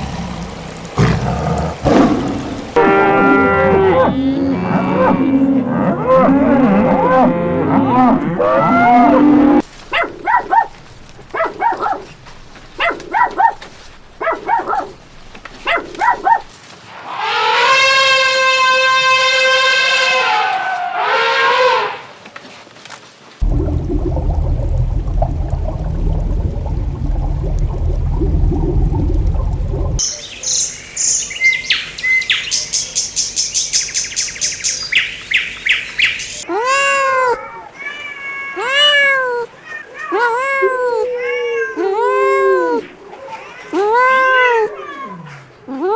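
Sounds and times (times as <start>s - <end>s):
dog barking in high yelps: 9.9s - 12.1s, 12.8s - 15.0s, 15.6s - 16.5s
songbird singing: 29.6s - 36.5s
cat meowing: 36.5s - 45.4s.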